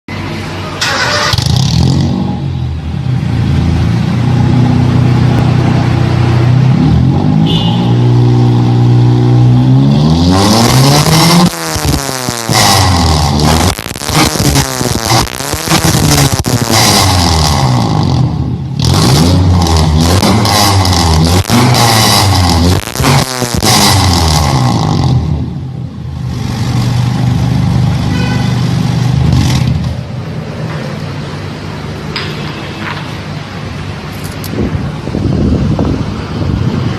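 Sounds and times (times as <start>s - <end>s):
car engine revving: 0.8s - 28.0s.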